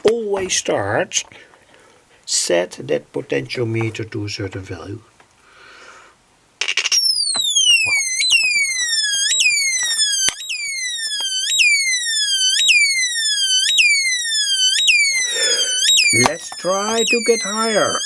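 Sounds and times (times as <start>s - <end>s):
electronic bird chirps: 14.8s - 18.0s.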